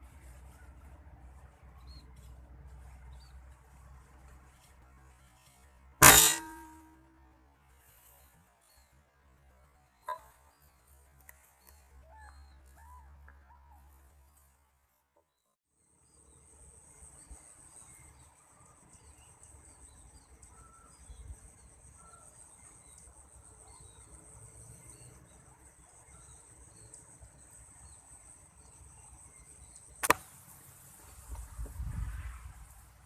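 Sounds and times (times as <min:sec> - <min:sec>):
sharp gunshot: 0:06.0 - 0:06.9, 0:30.0 - 0:30.2
faint bird chirps: 0:16.1 - 0:29.9.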